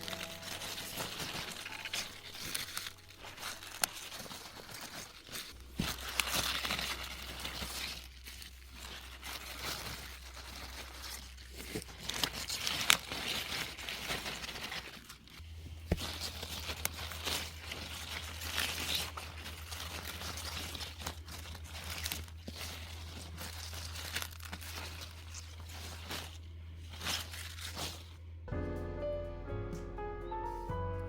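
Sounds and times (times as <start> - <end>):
crinkling rustling handling noise: 0.0 - 28.5.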